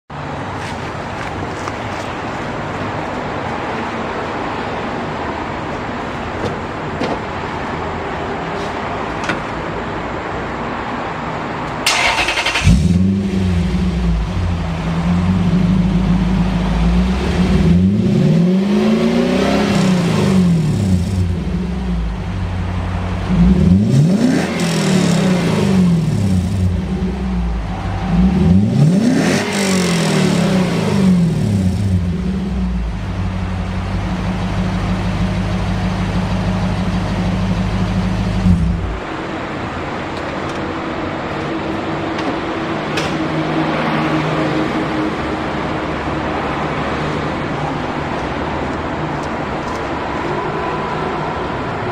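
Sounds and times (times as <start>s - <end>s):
engine idling and revving: 11.8s - 51.9s.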